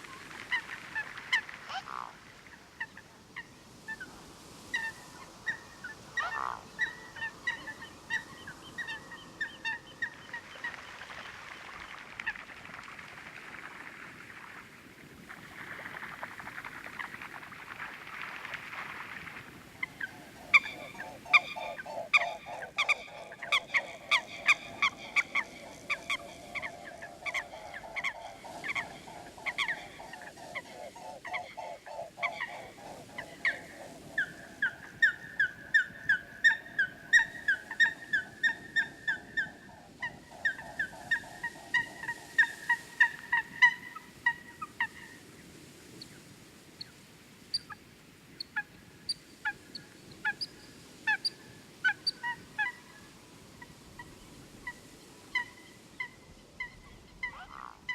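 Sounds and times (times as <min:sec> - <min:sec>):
waterfowl calling: 0:19.8 - 0:45.2, 0:54.6 - 0:57.9.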